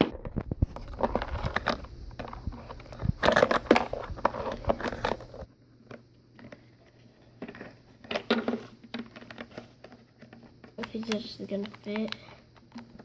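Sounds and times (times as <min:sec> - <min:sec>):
crinkling: 0:00.0 - 0:13.0
plastic toy parts clicking: 0:10.8 - 0:13.0.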